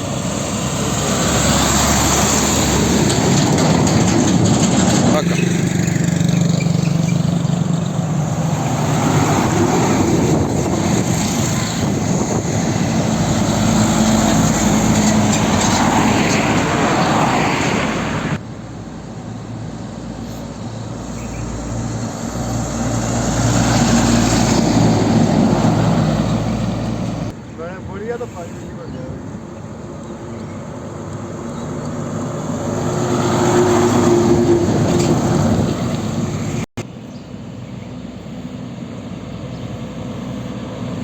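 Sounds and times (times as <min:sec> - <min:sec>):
heavy truck engine running: 0:00.0 - 0:17.0
road noise: 0:00.0 - 0:41.0.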